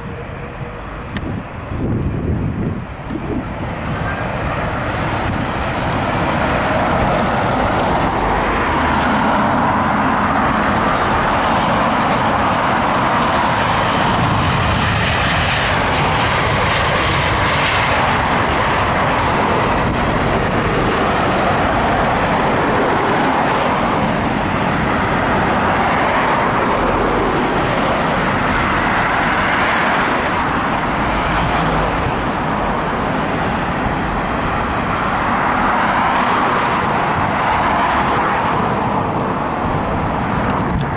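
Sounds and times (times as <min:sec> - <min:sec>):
jet engine noise: 0:00.0 - 0:40.9.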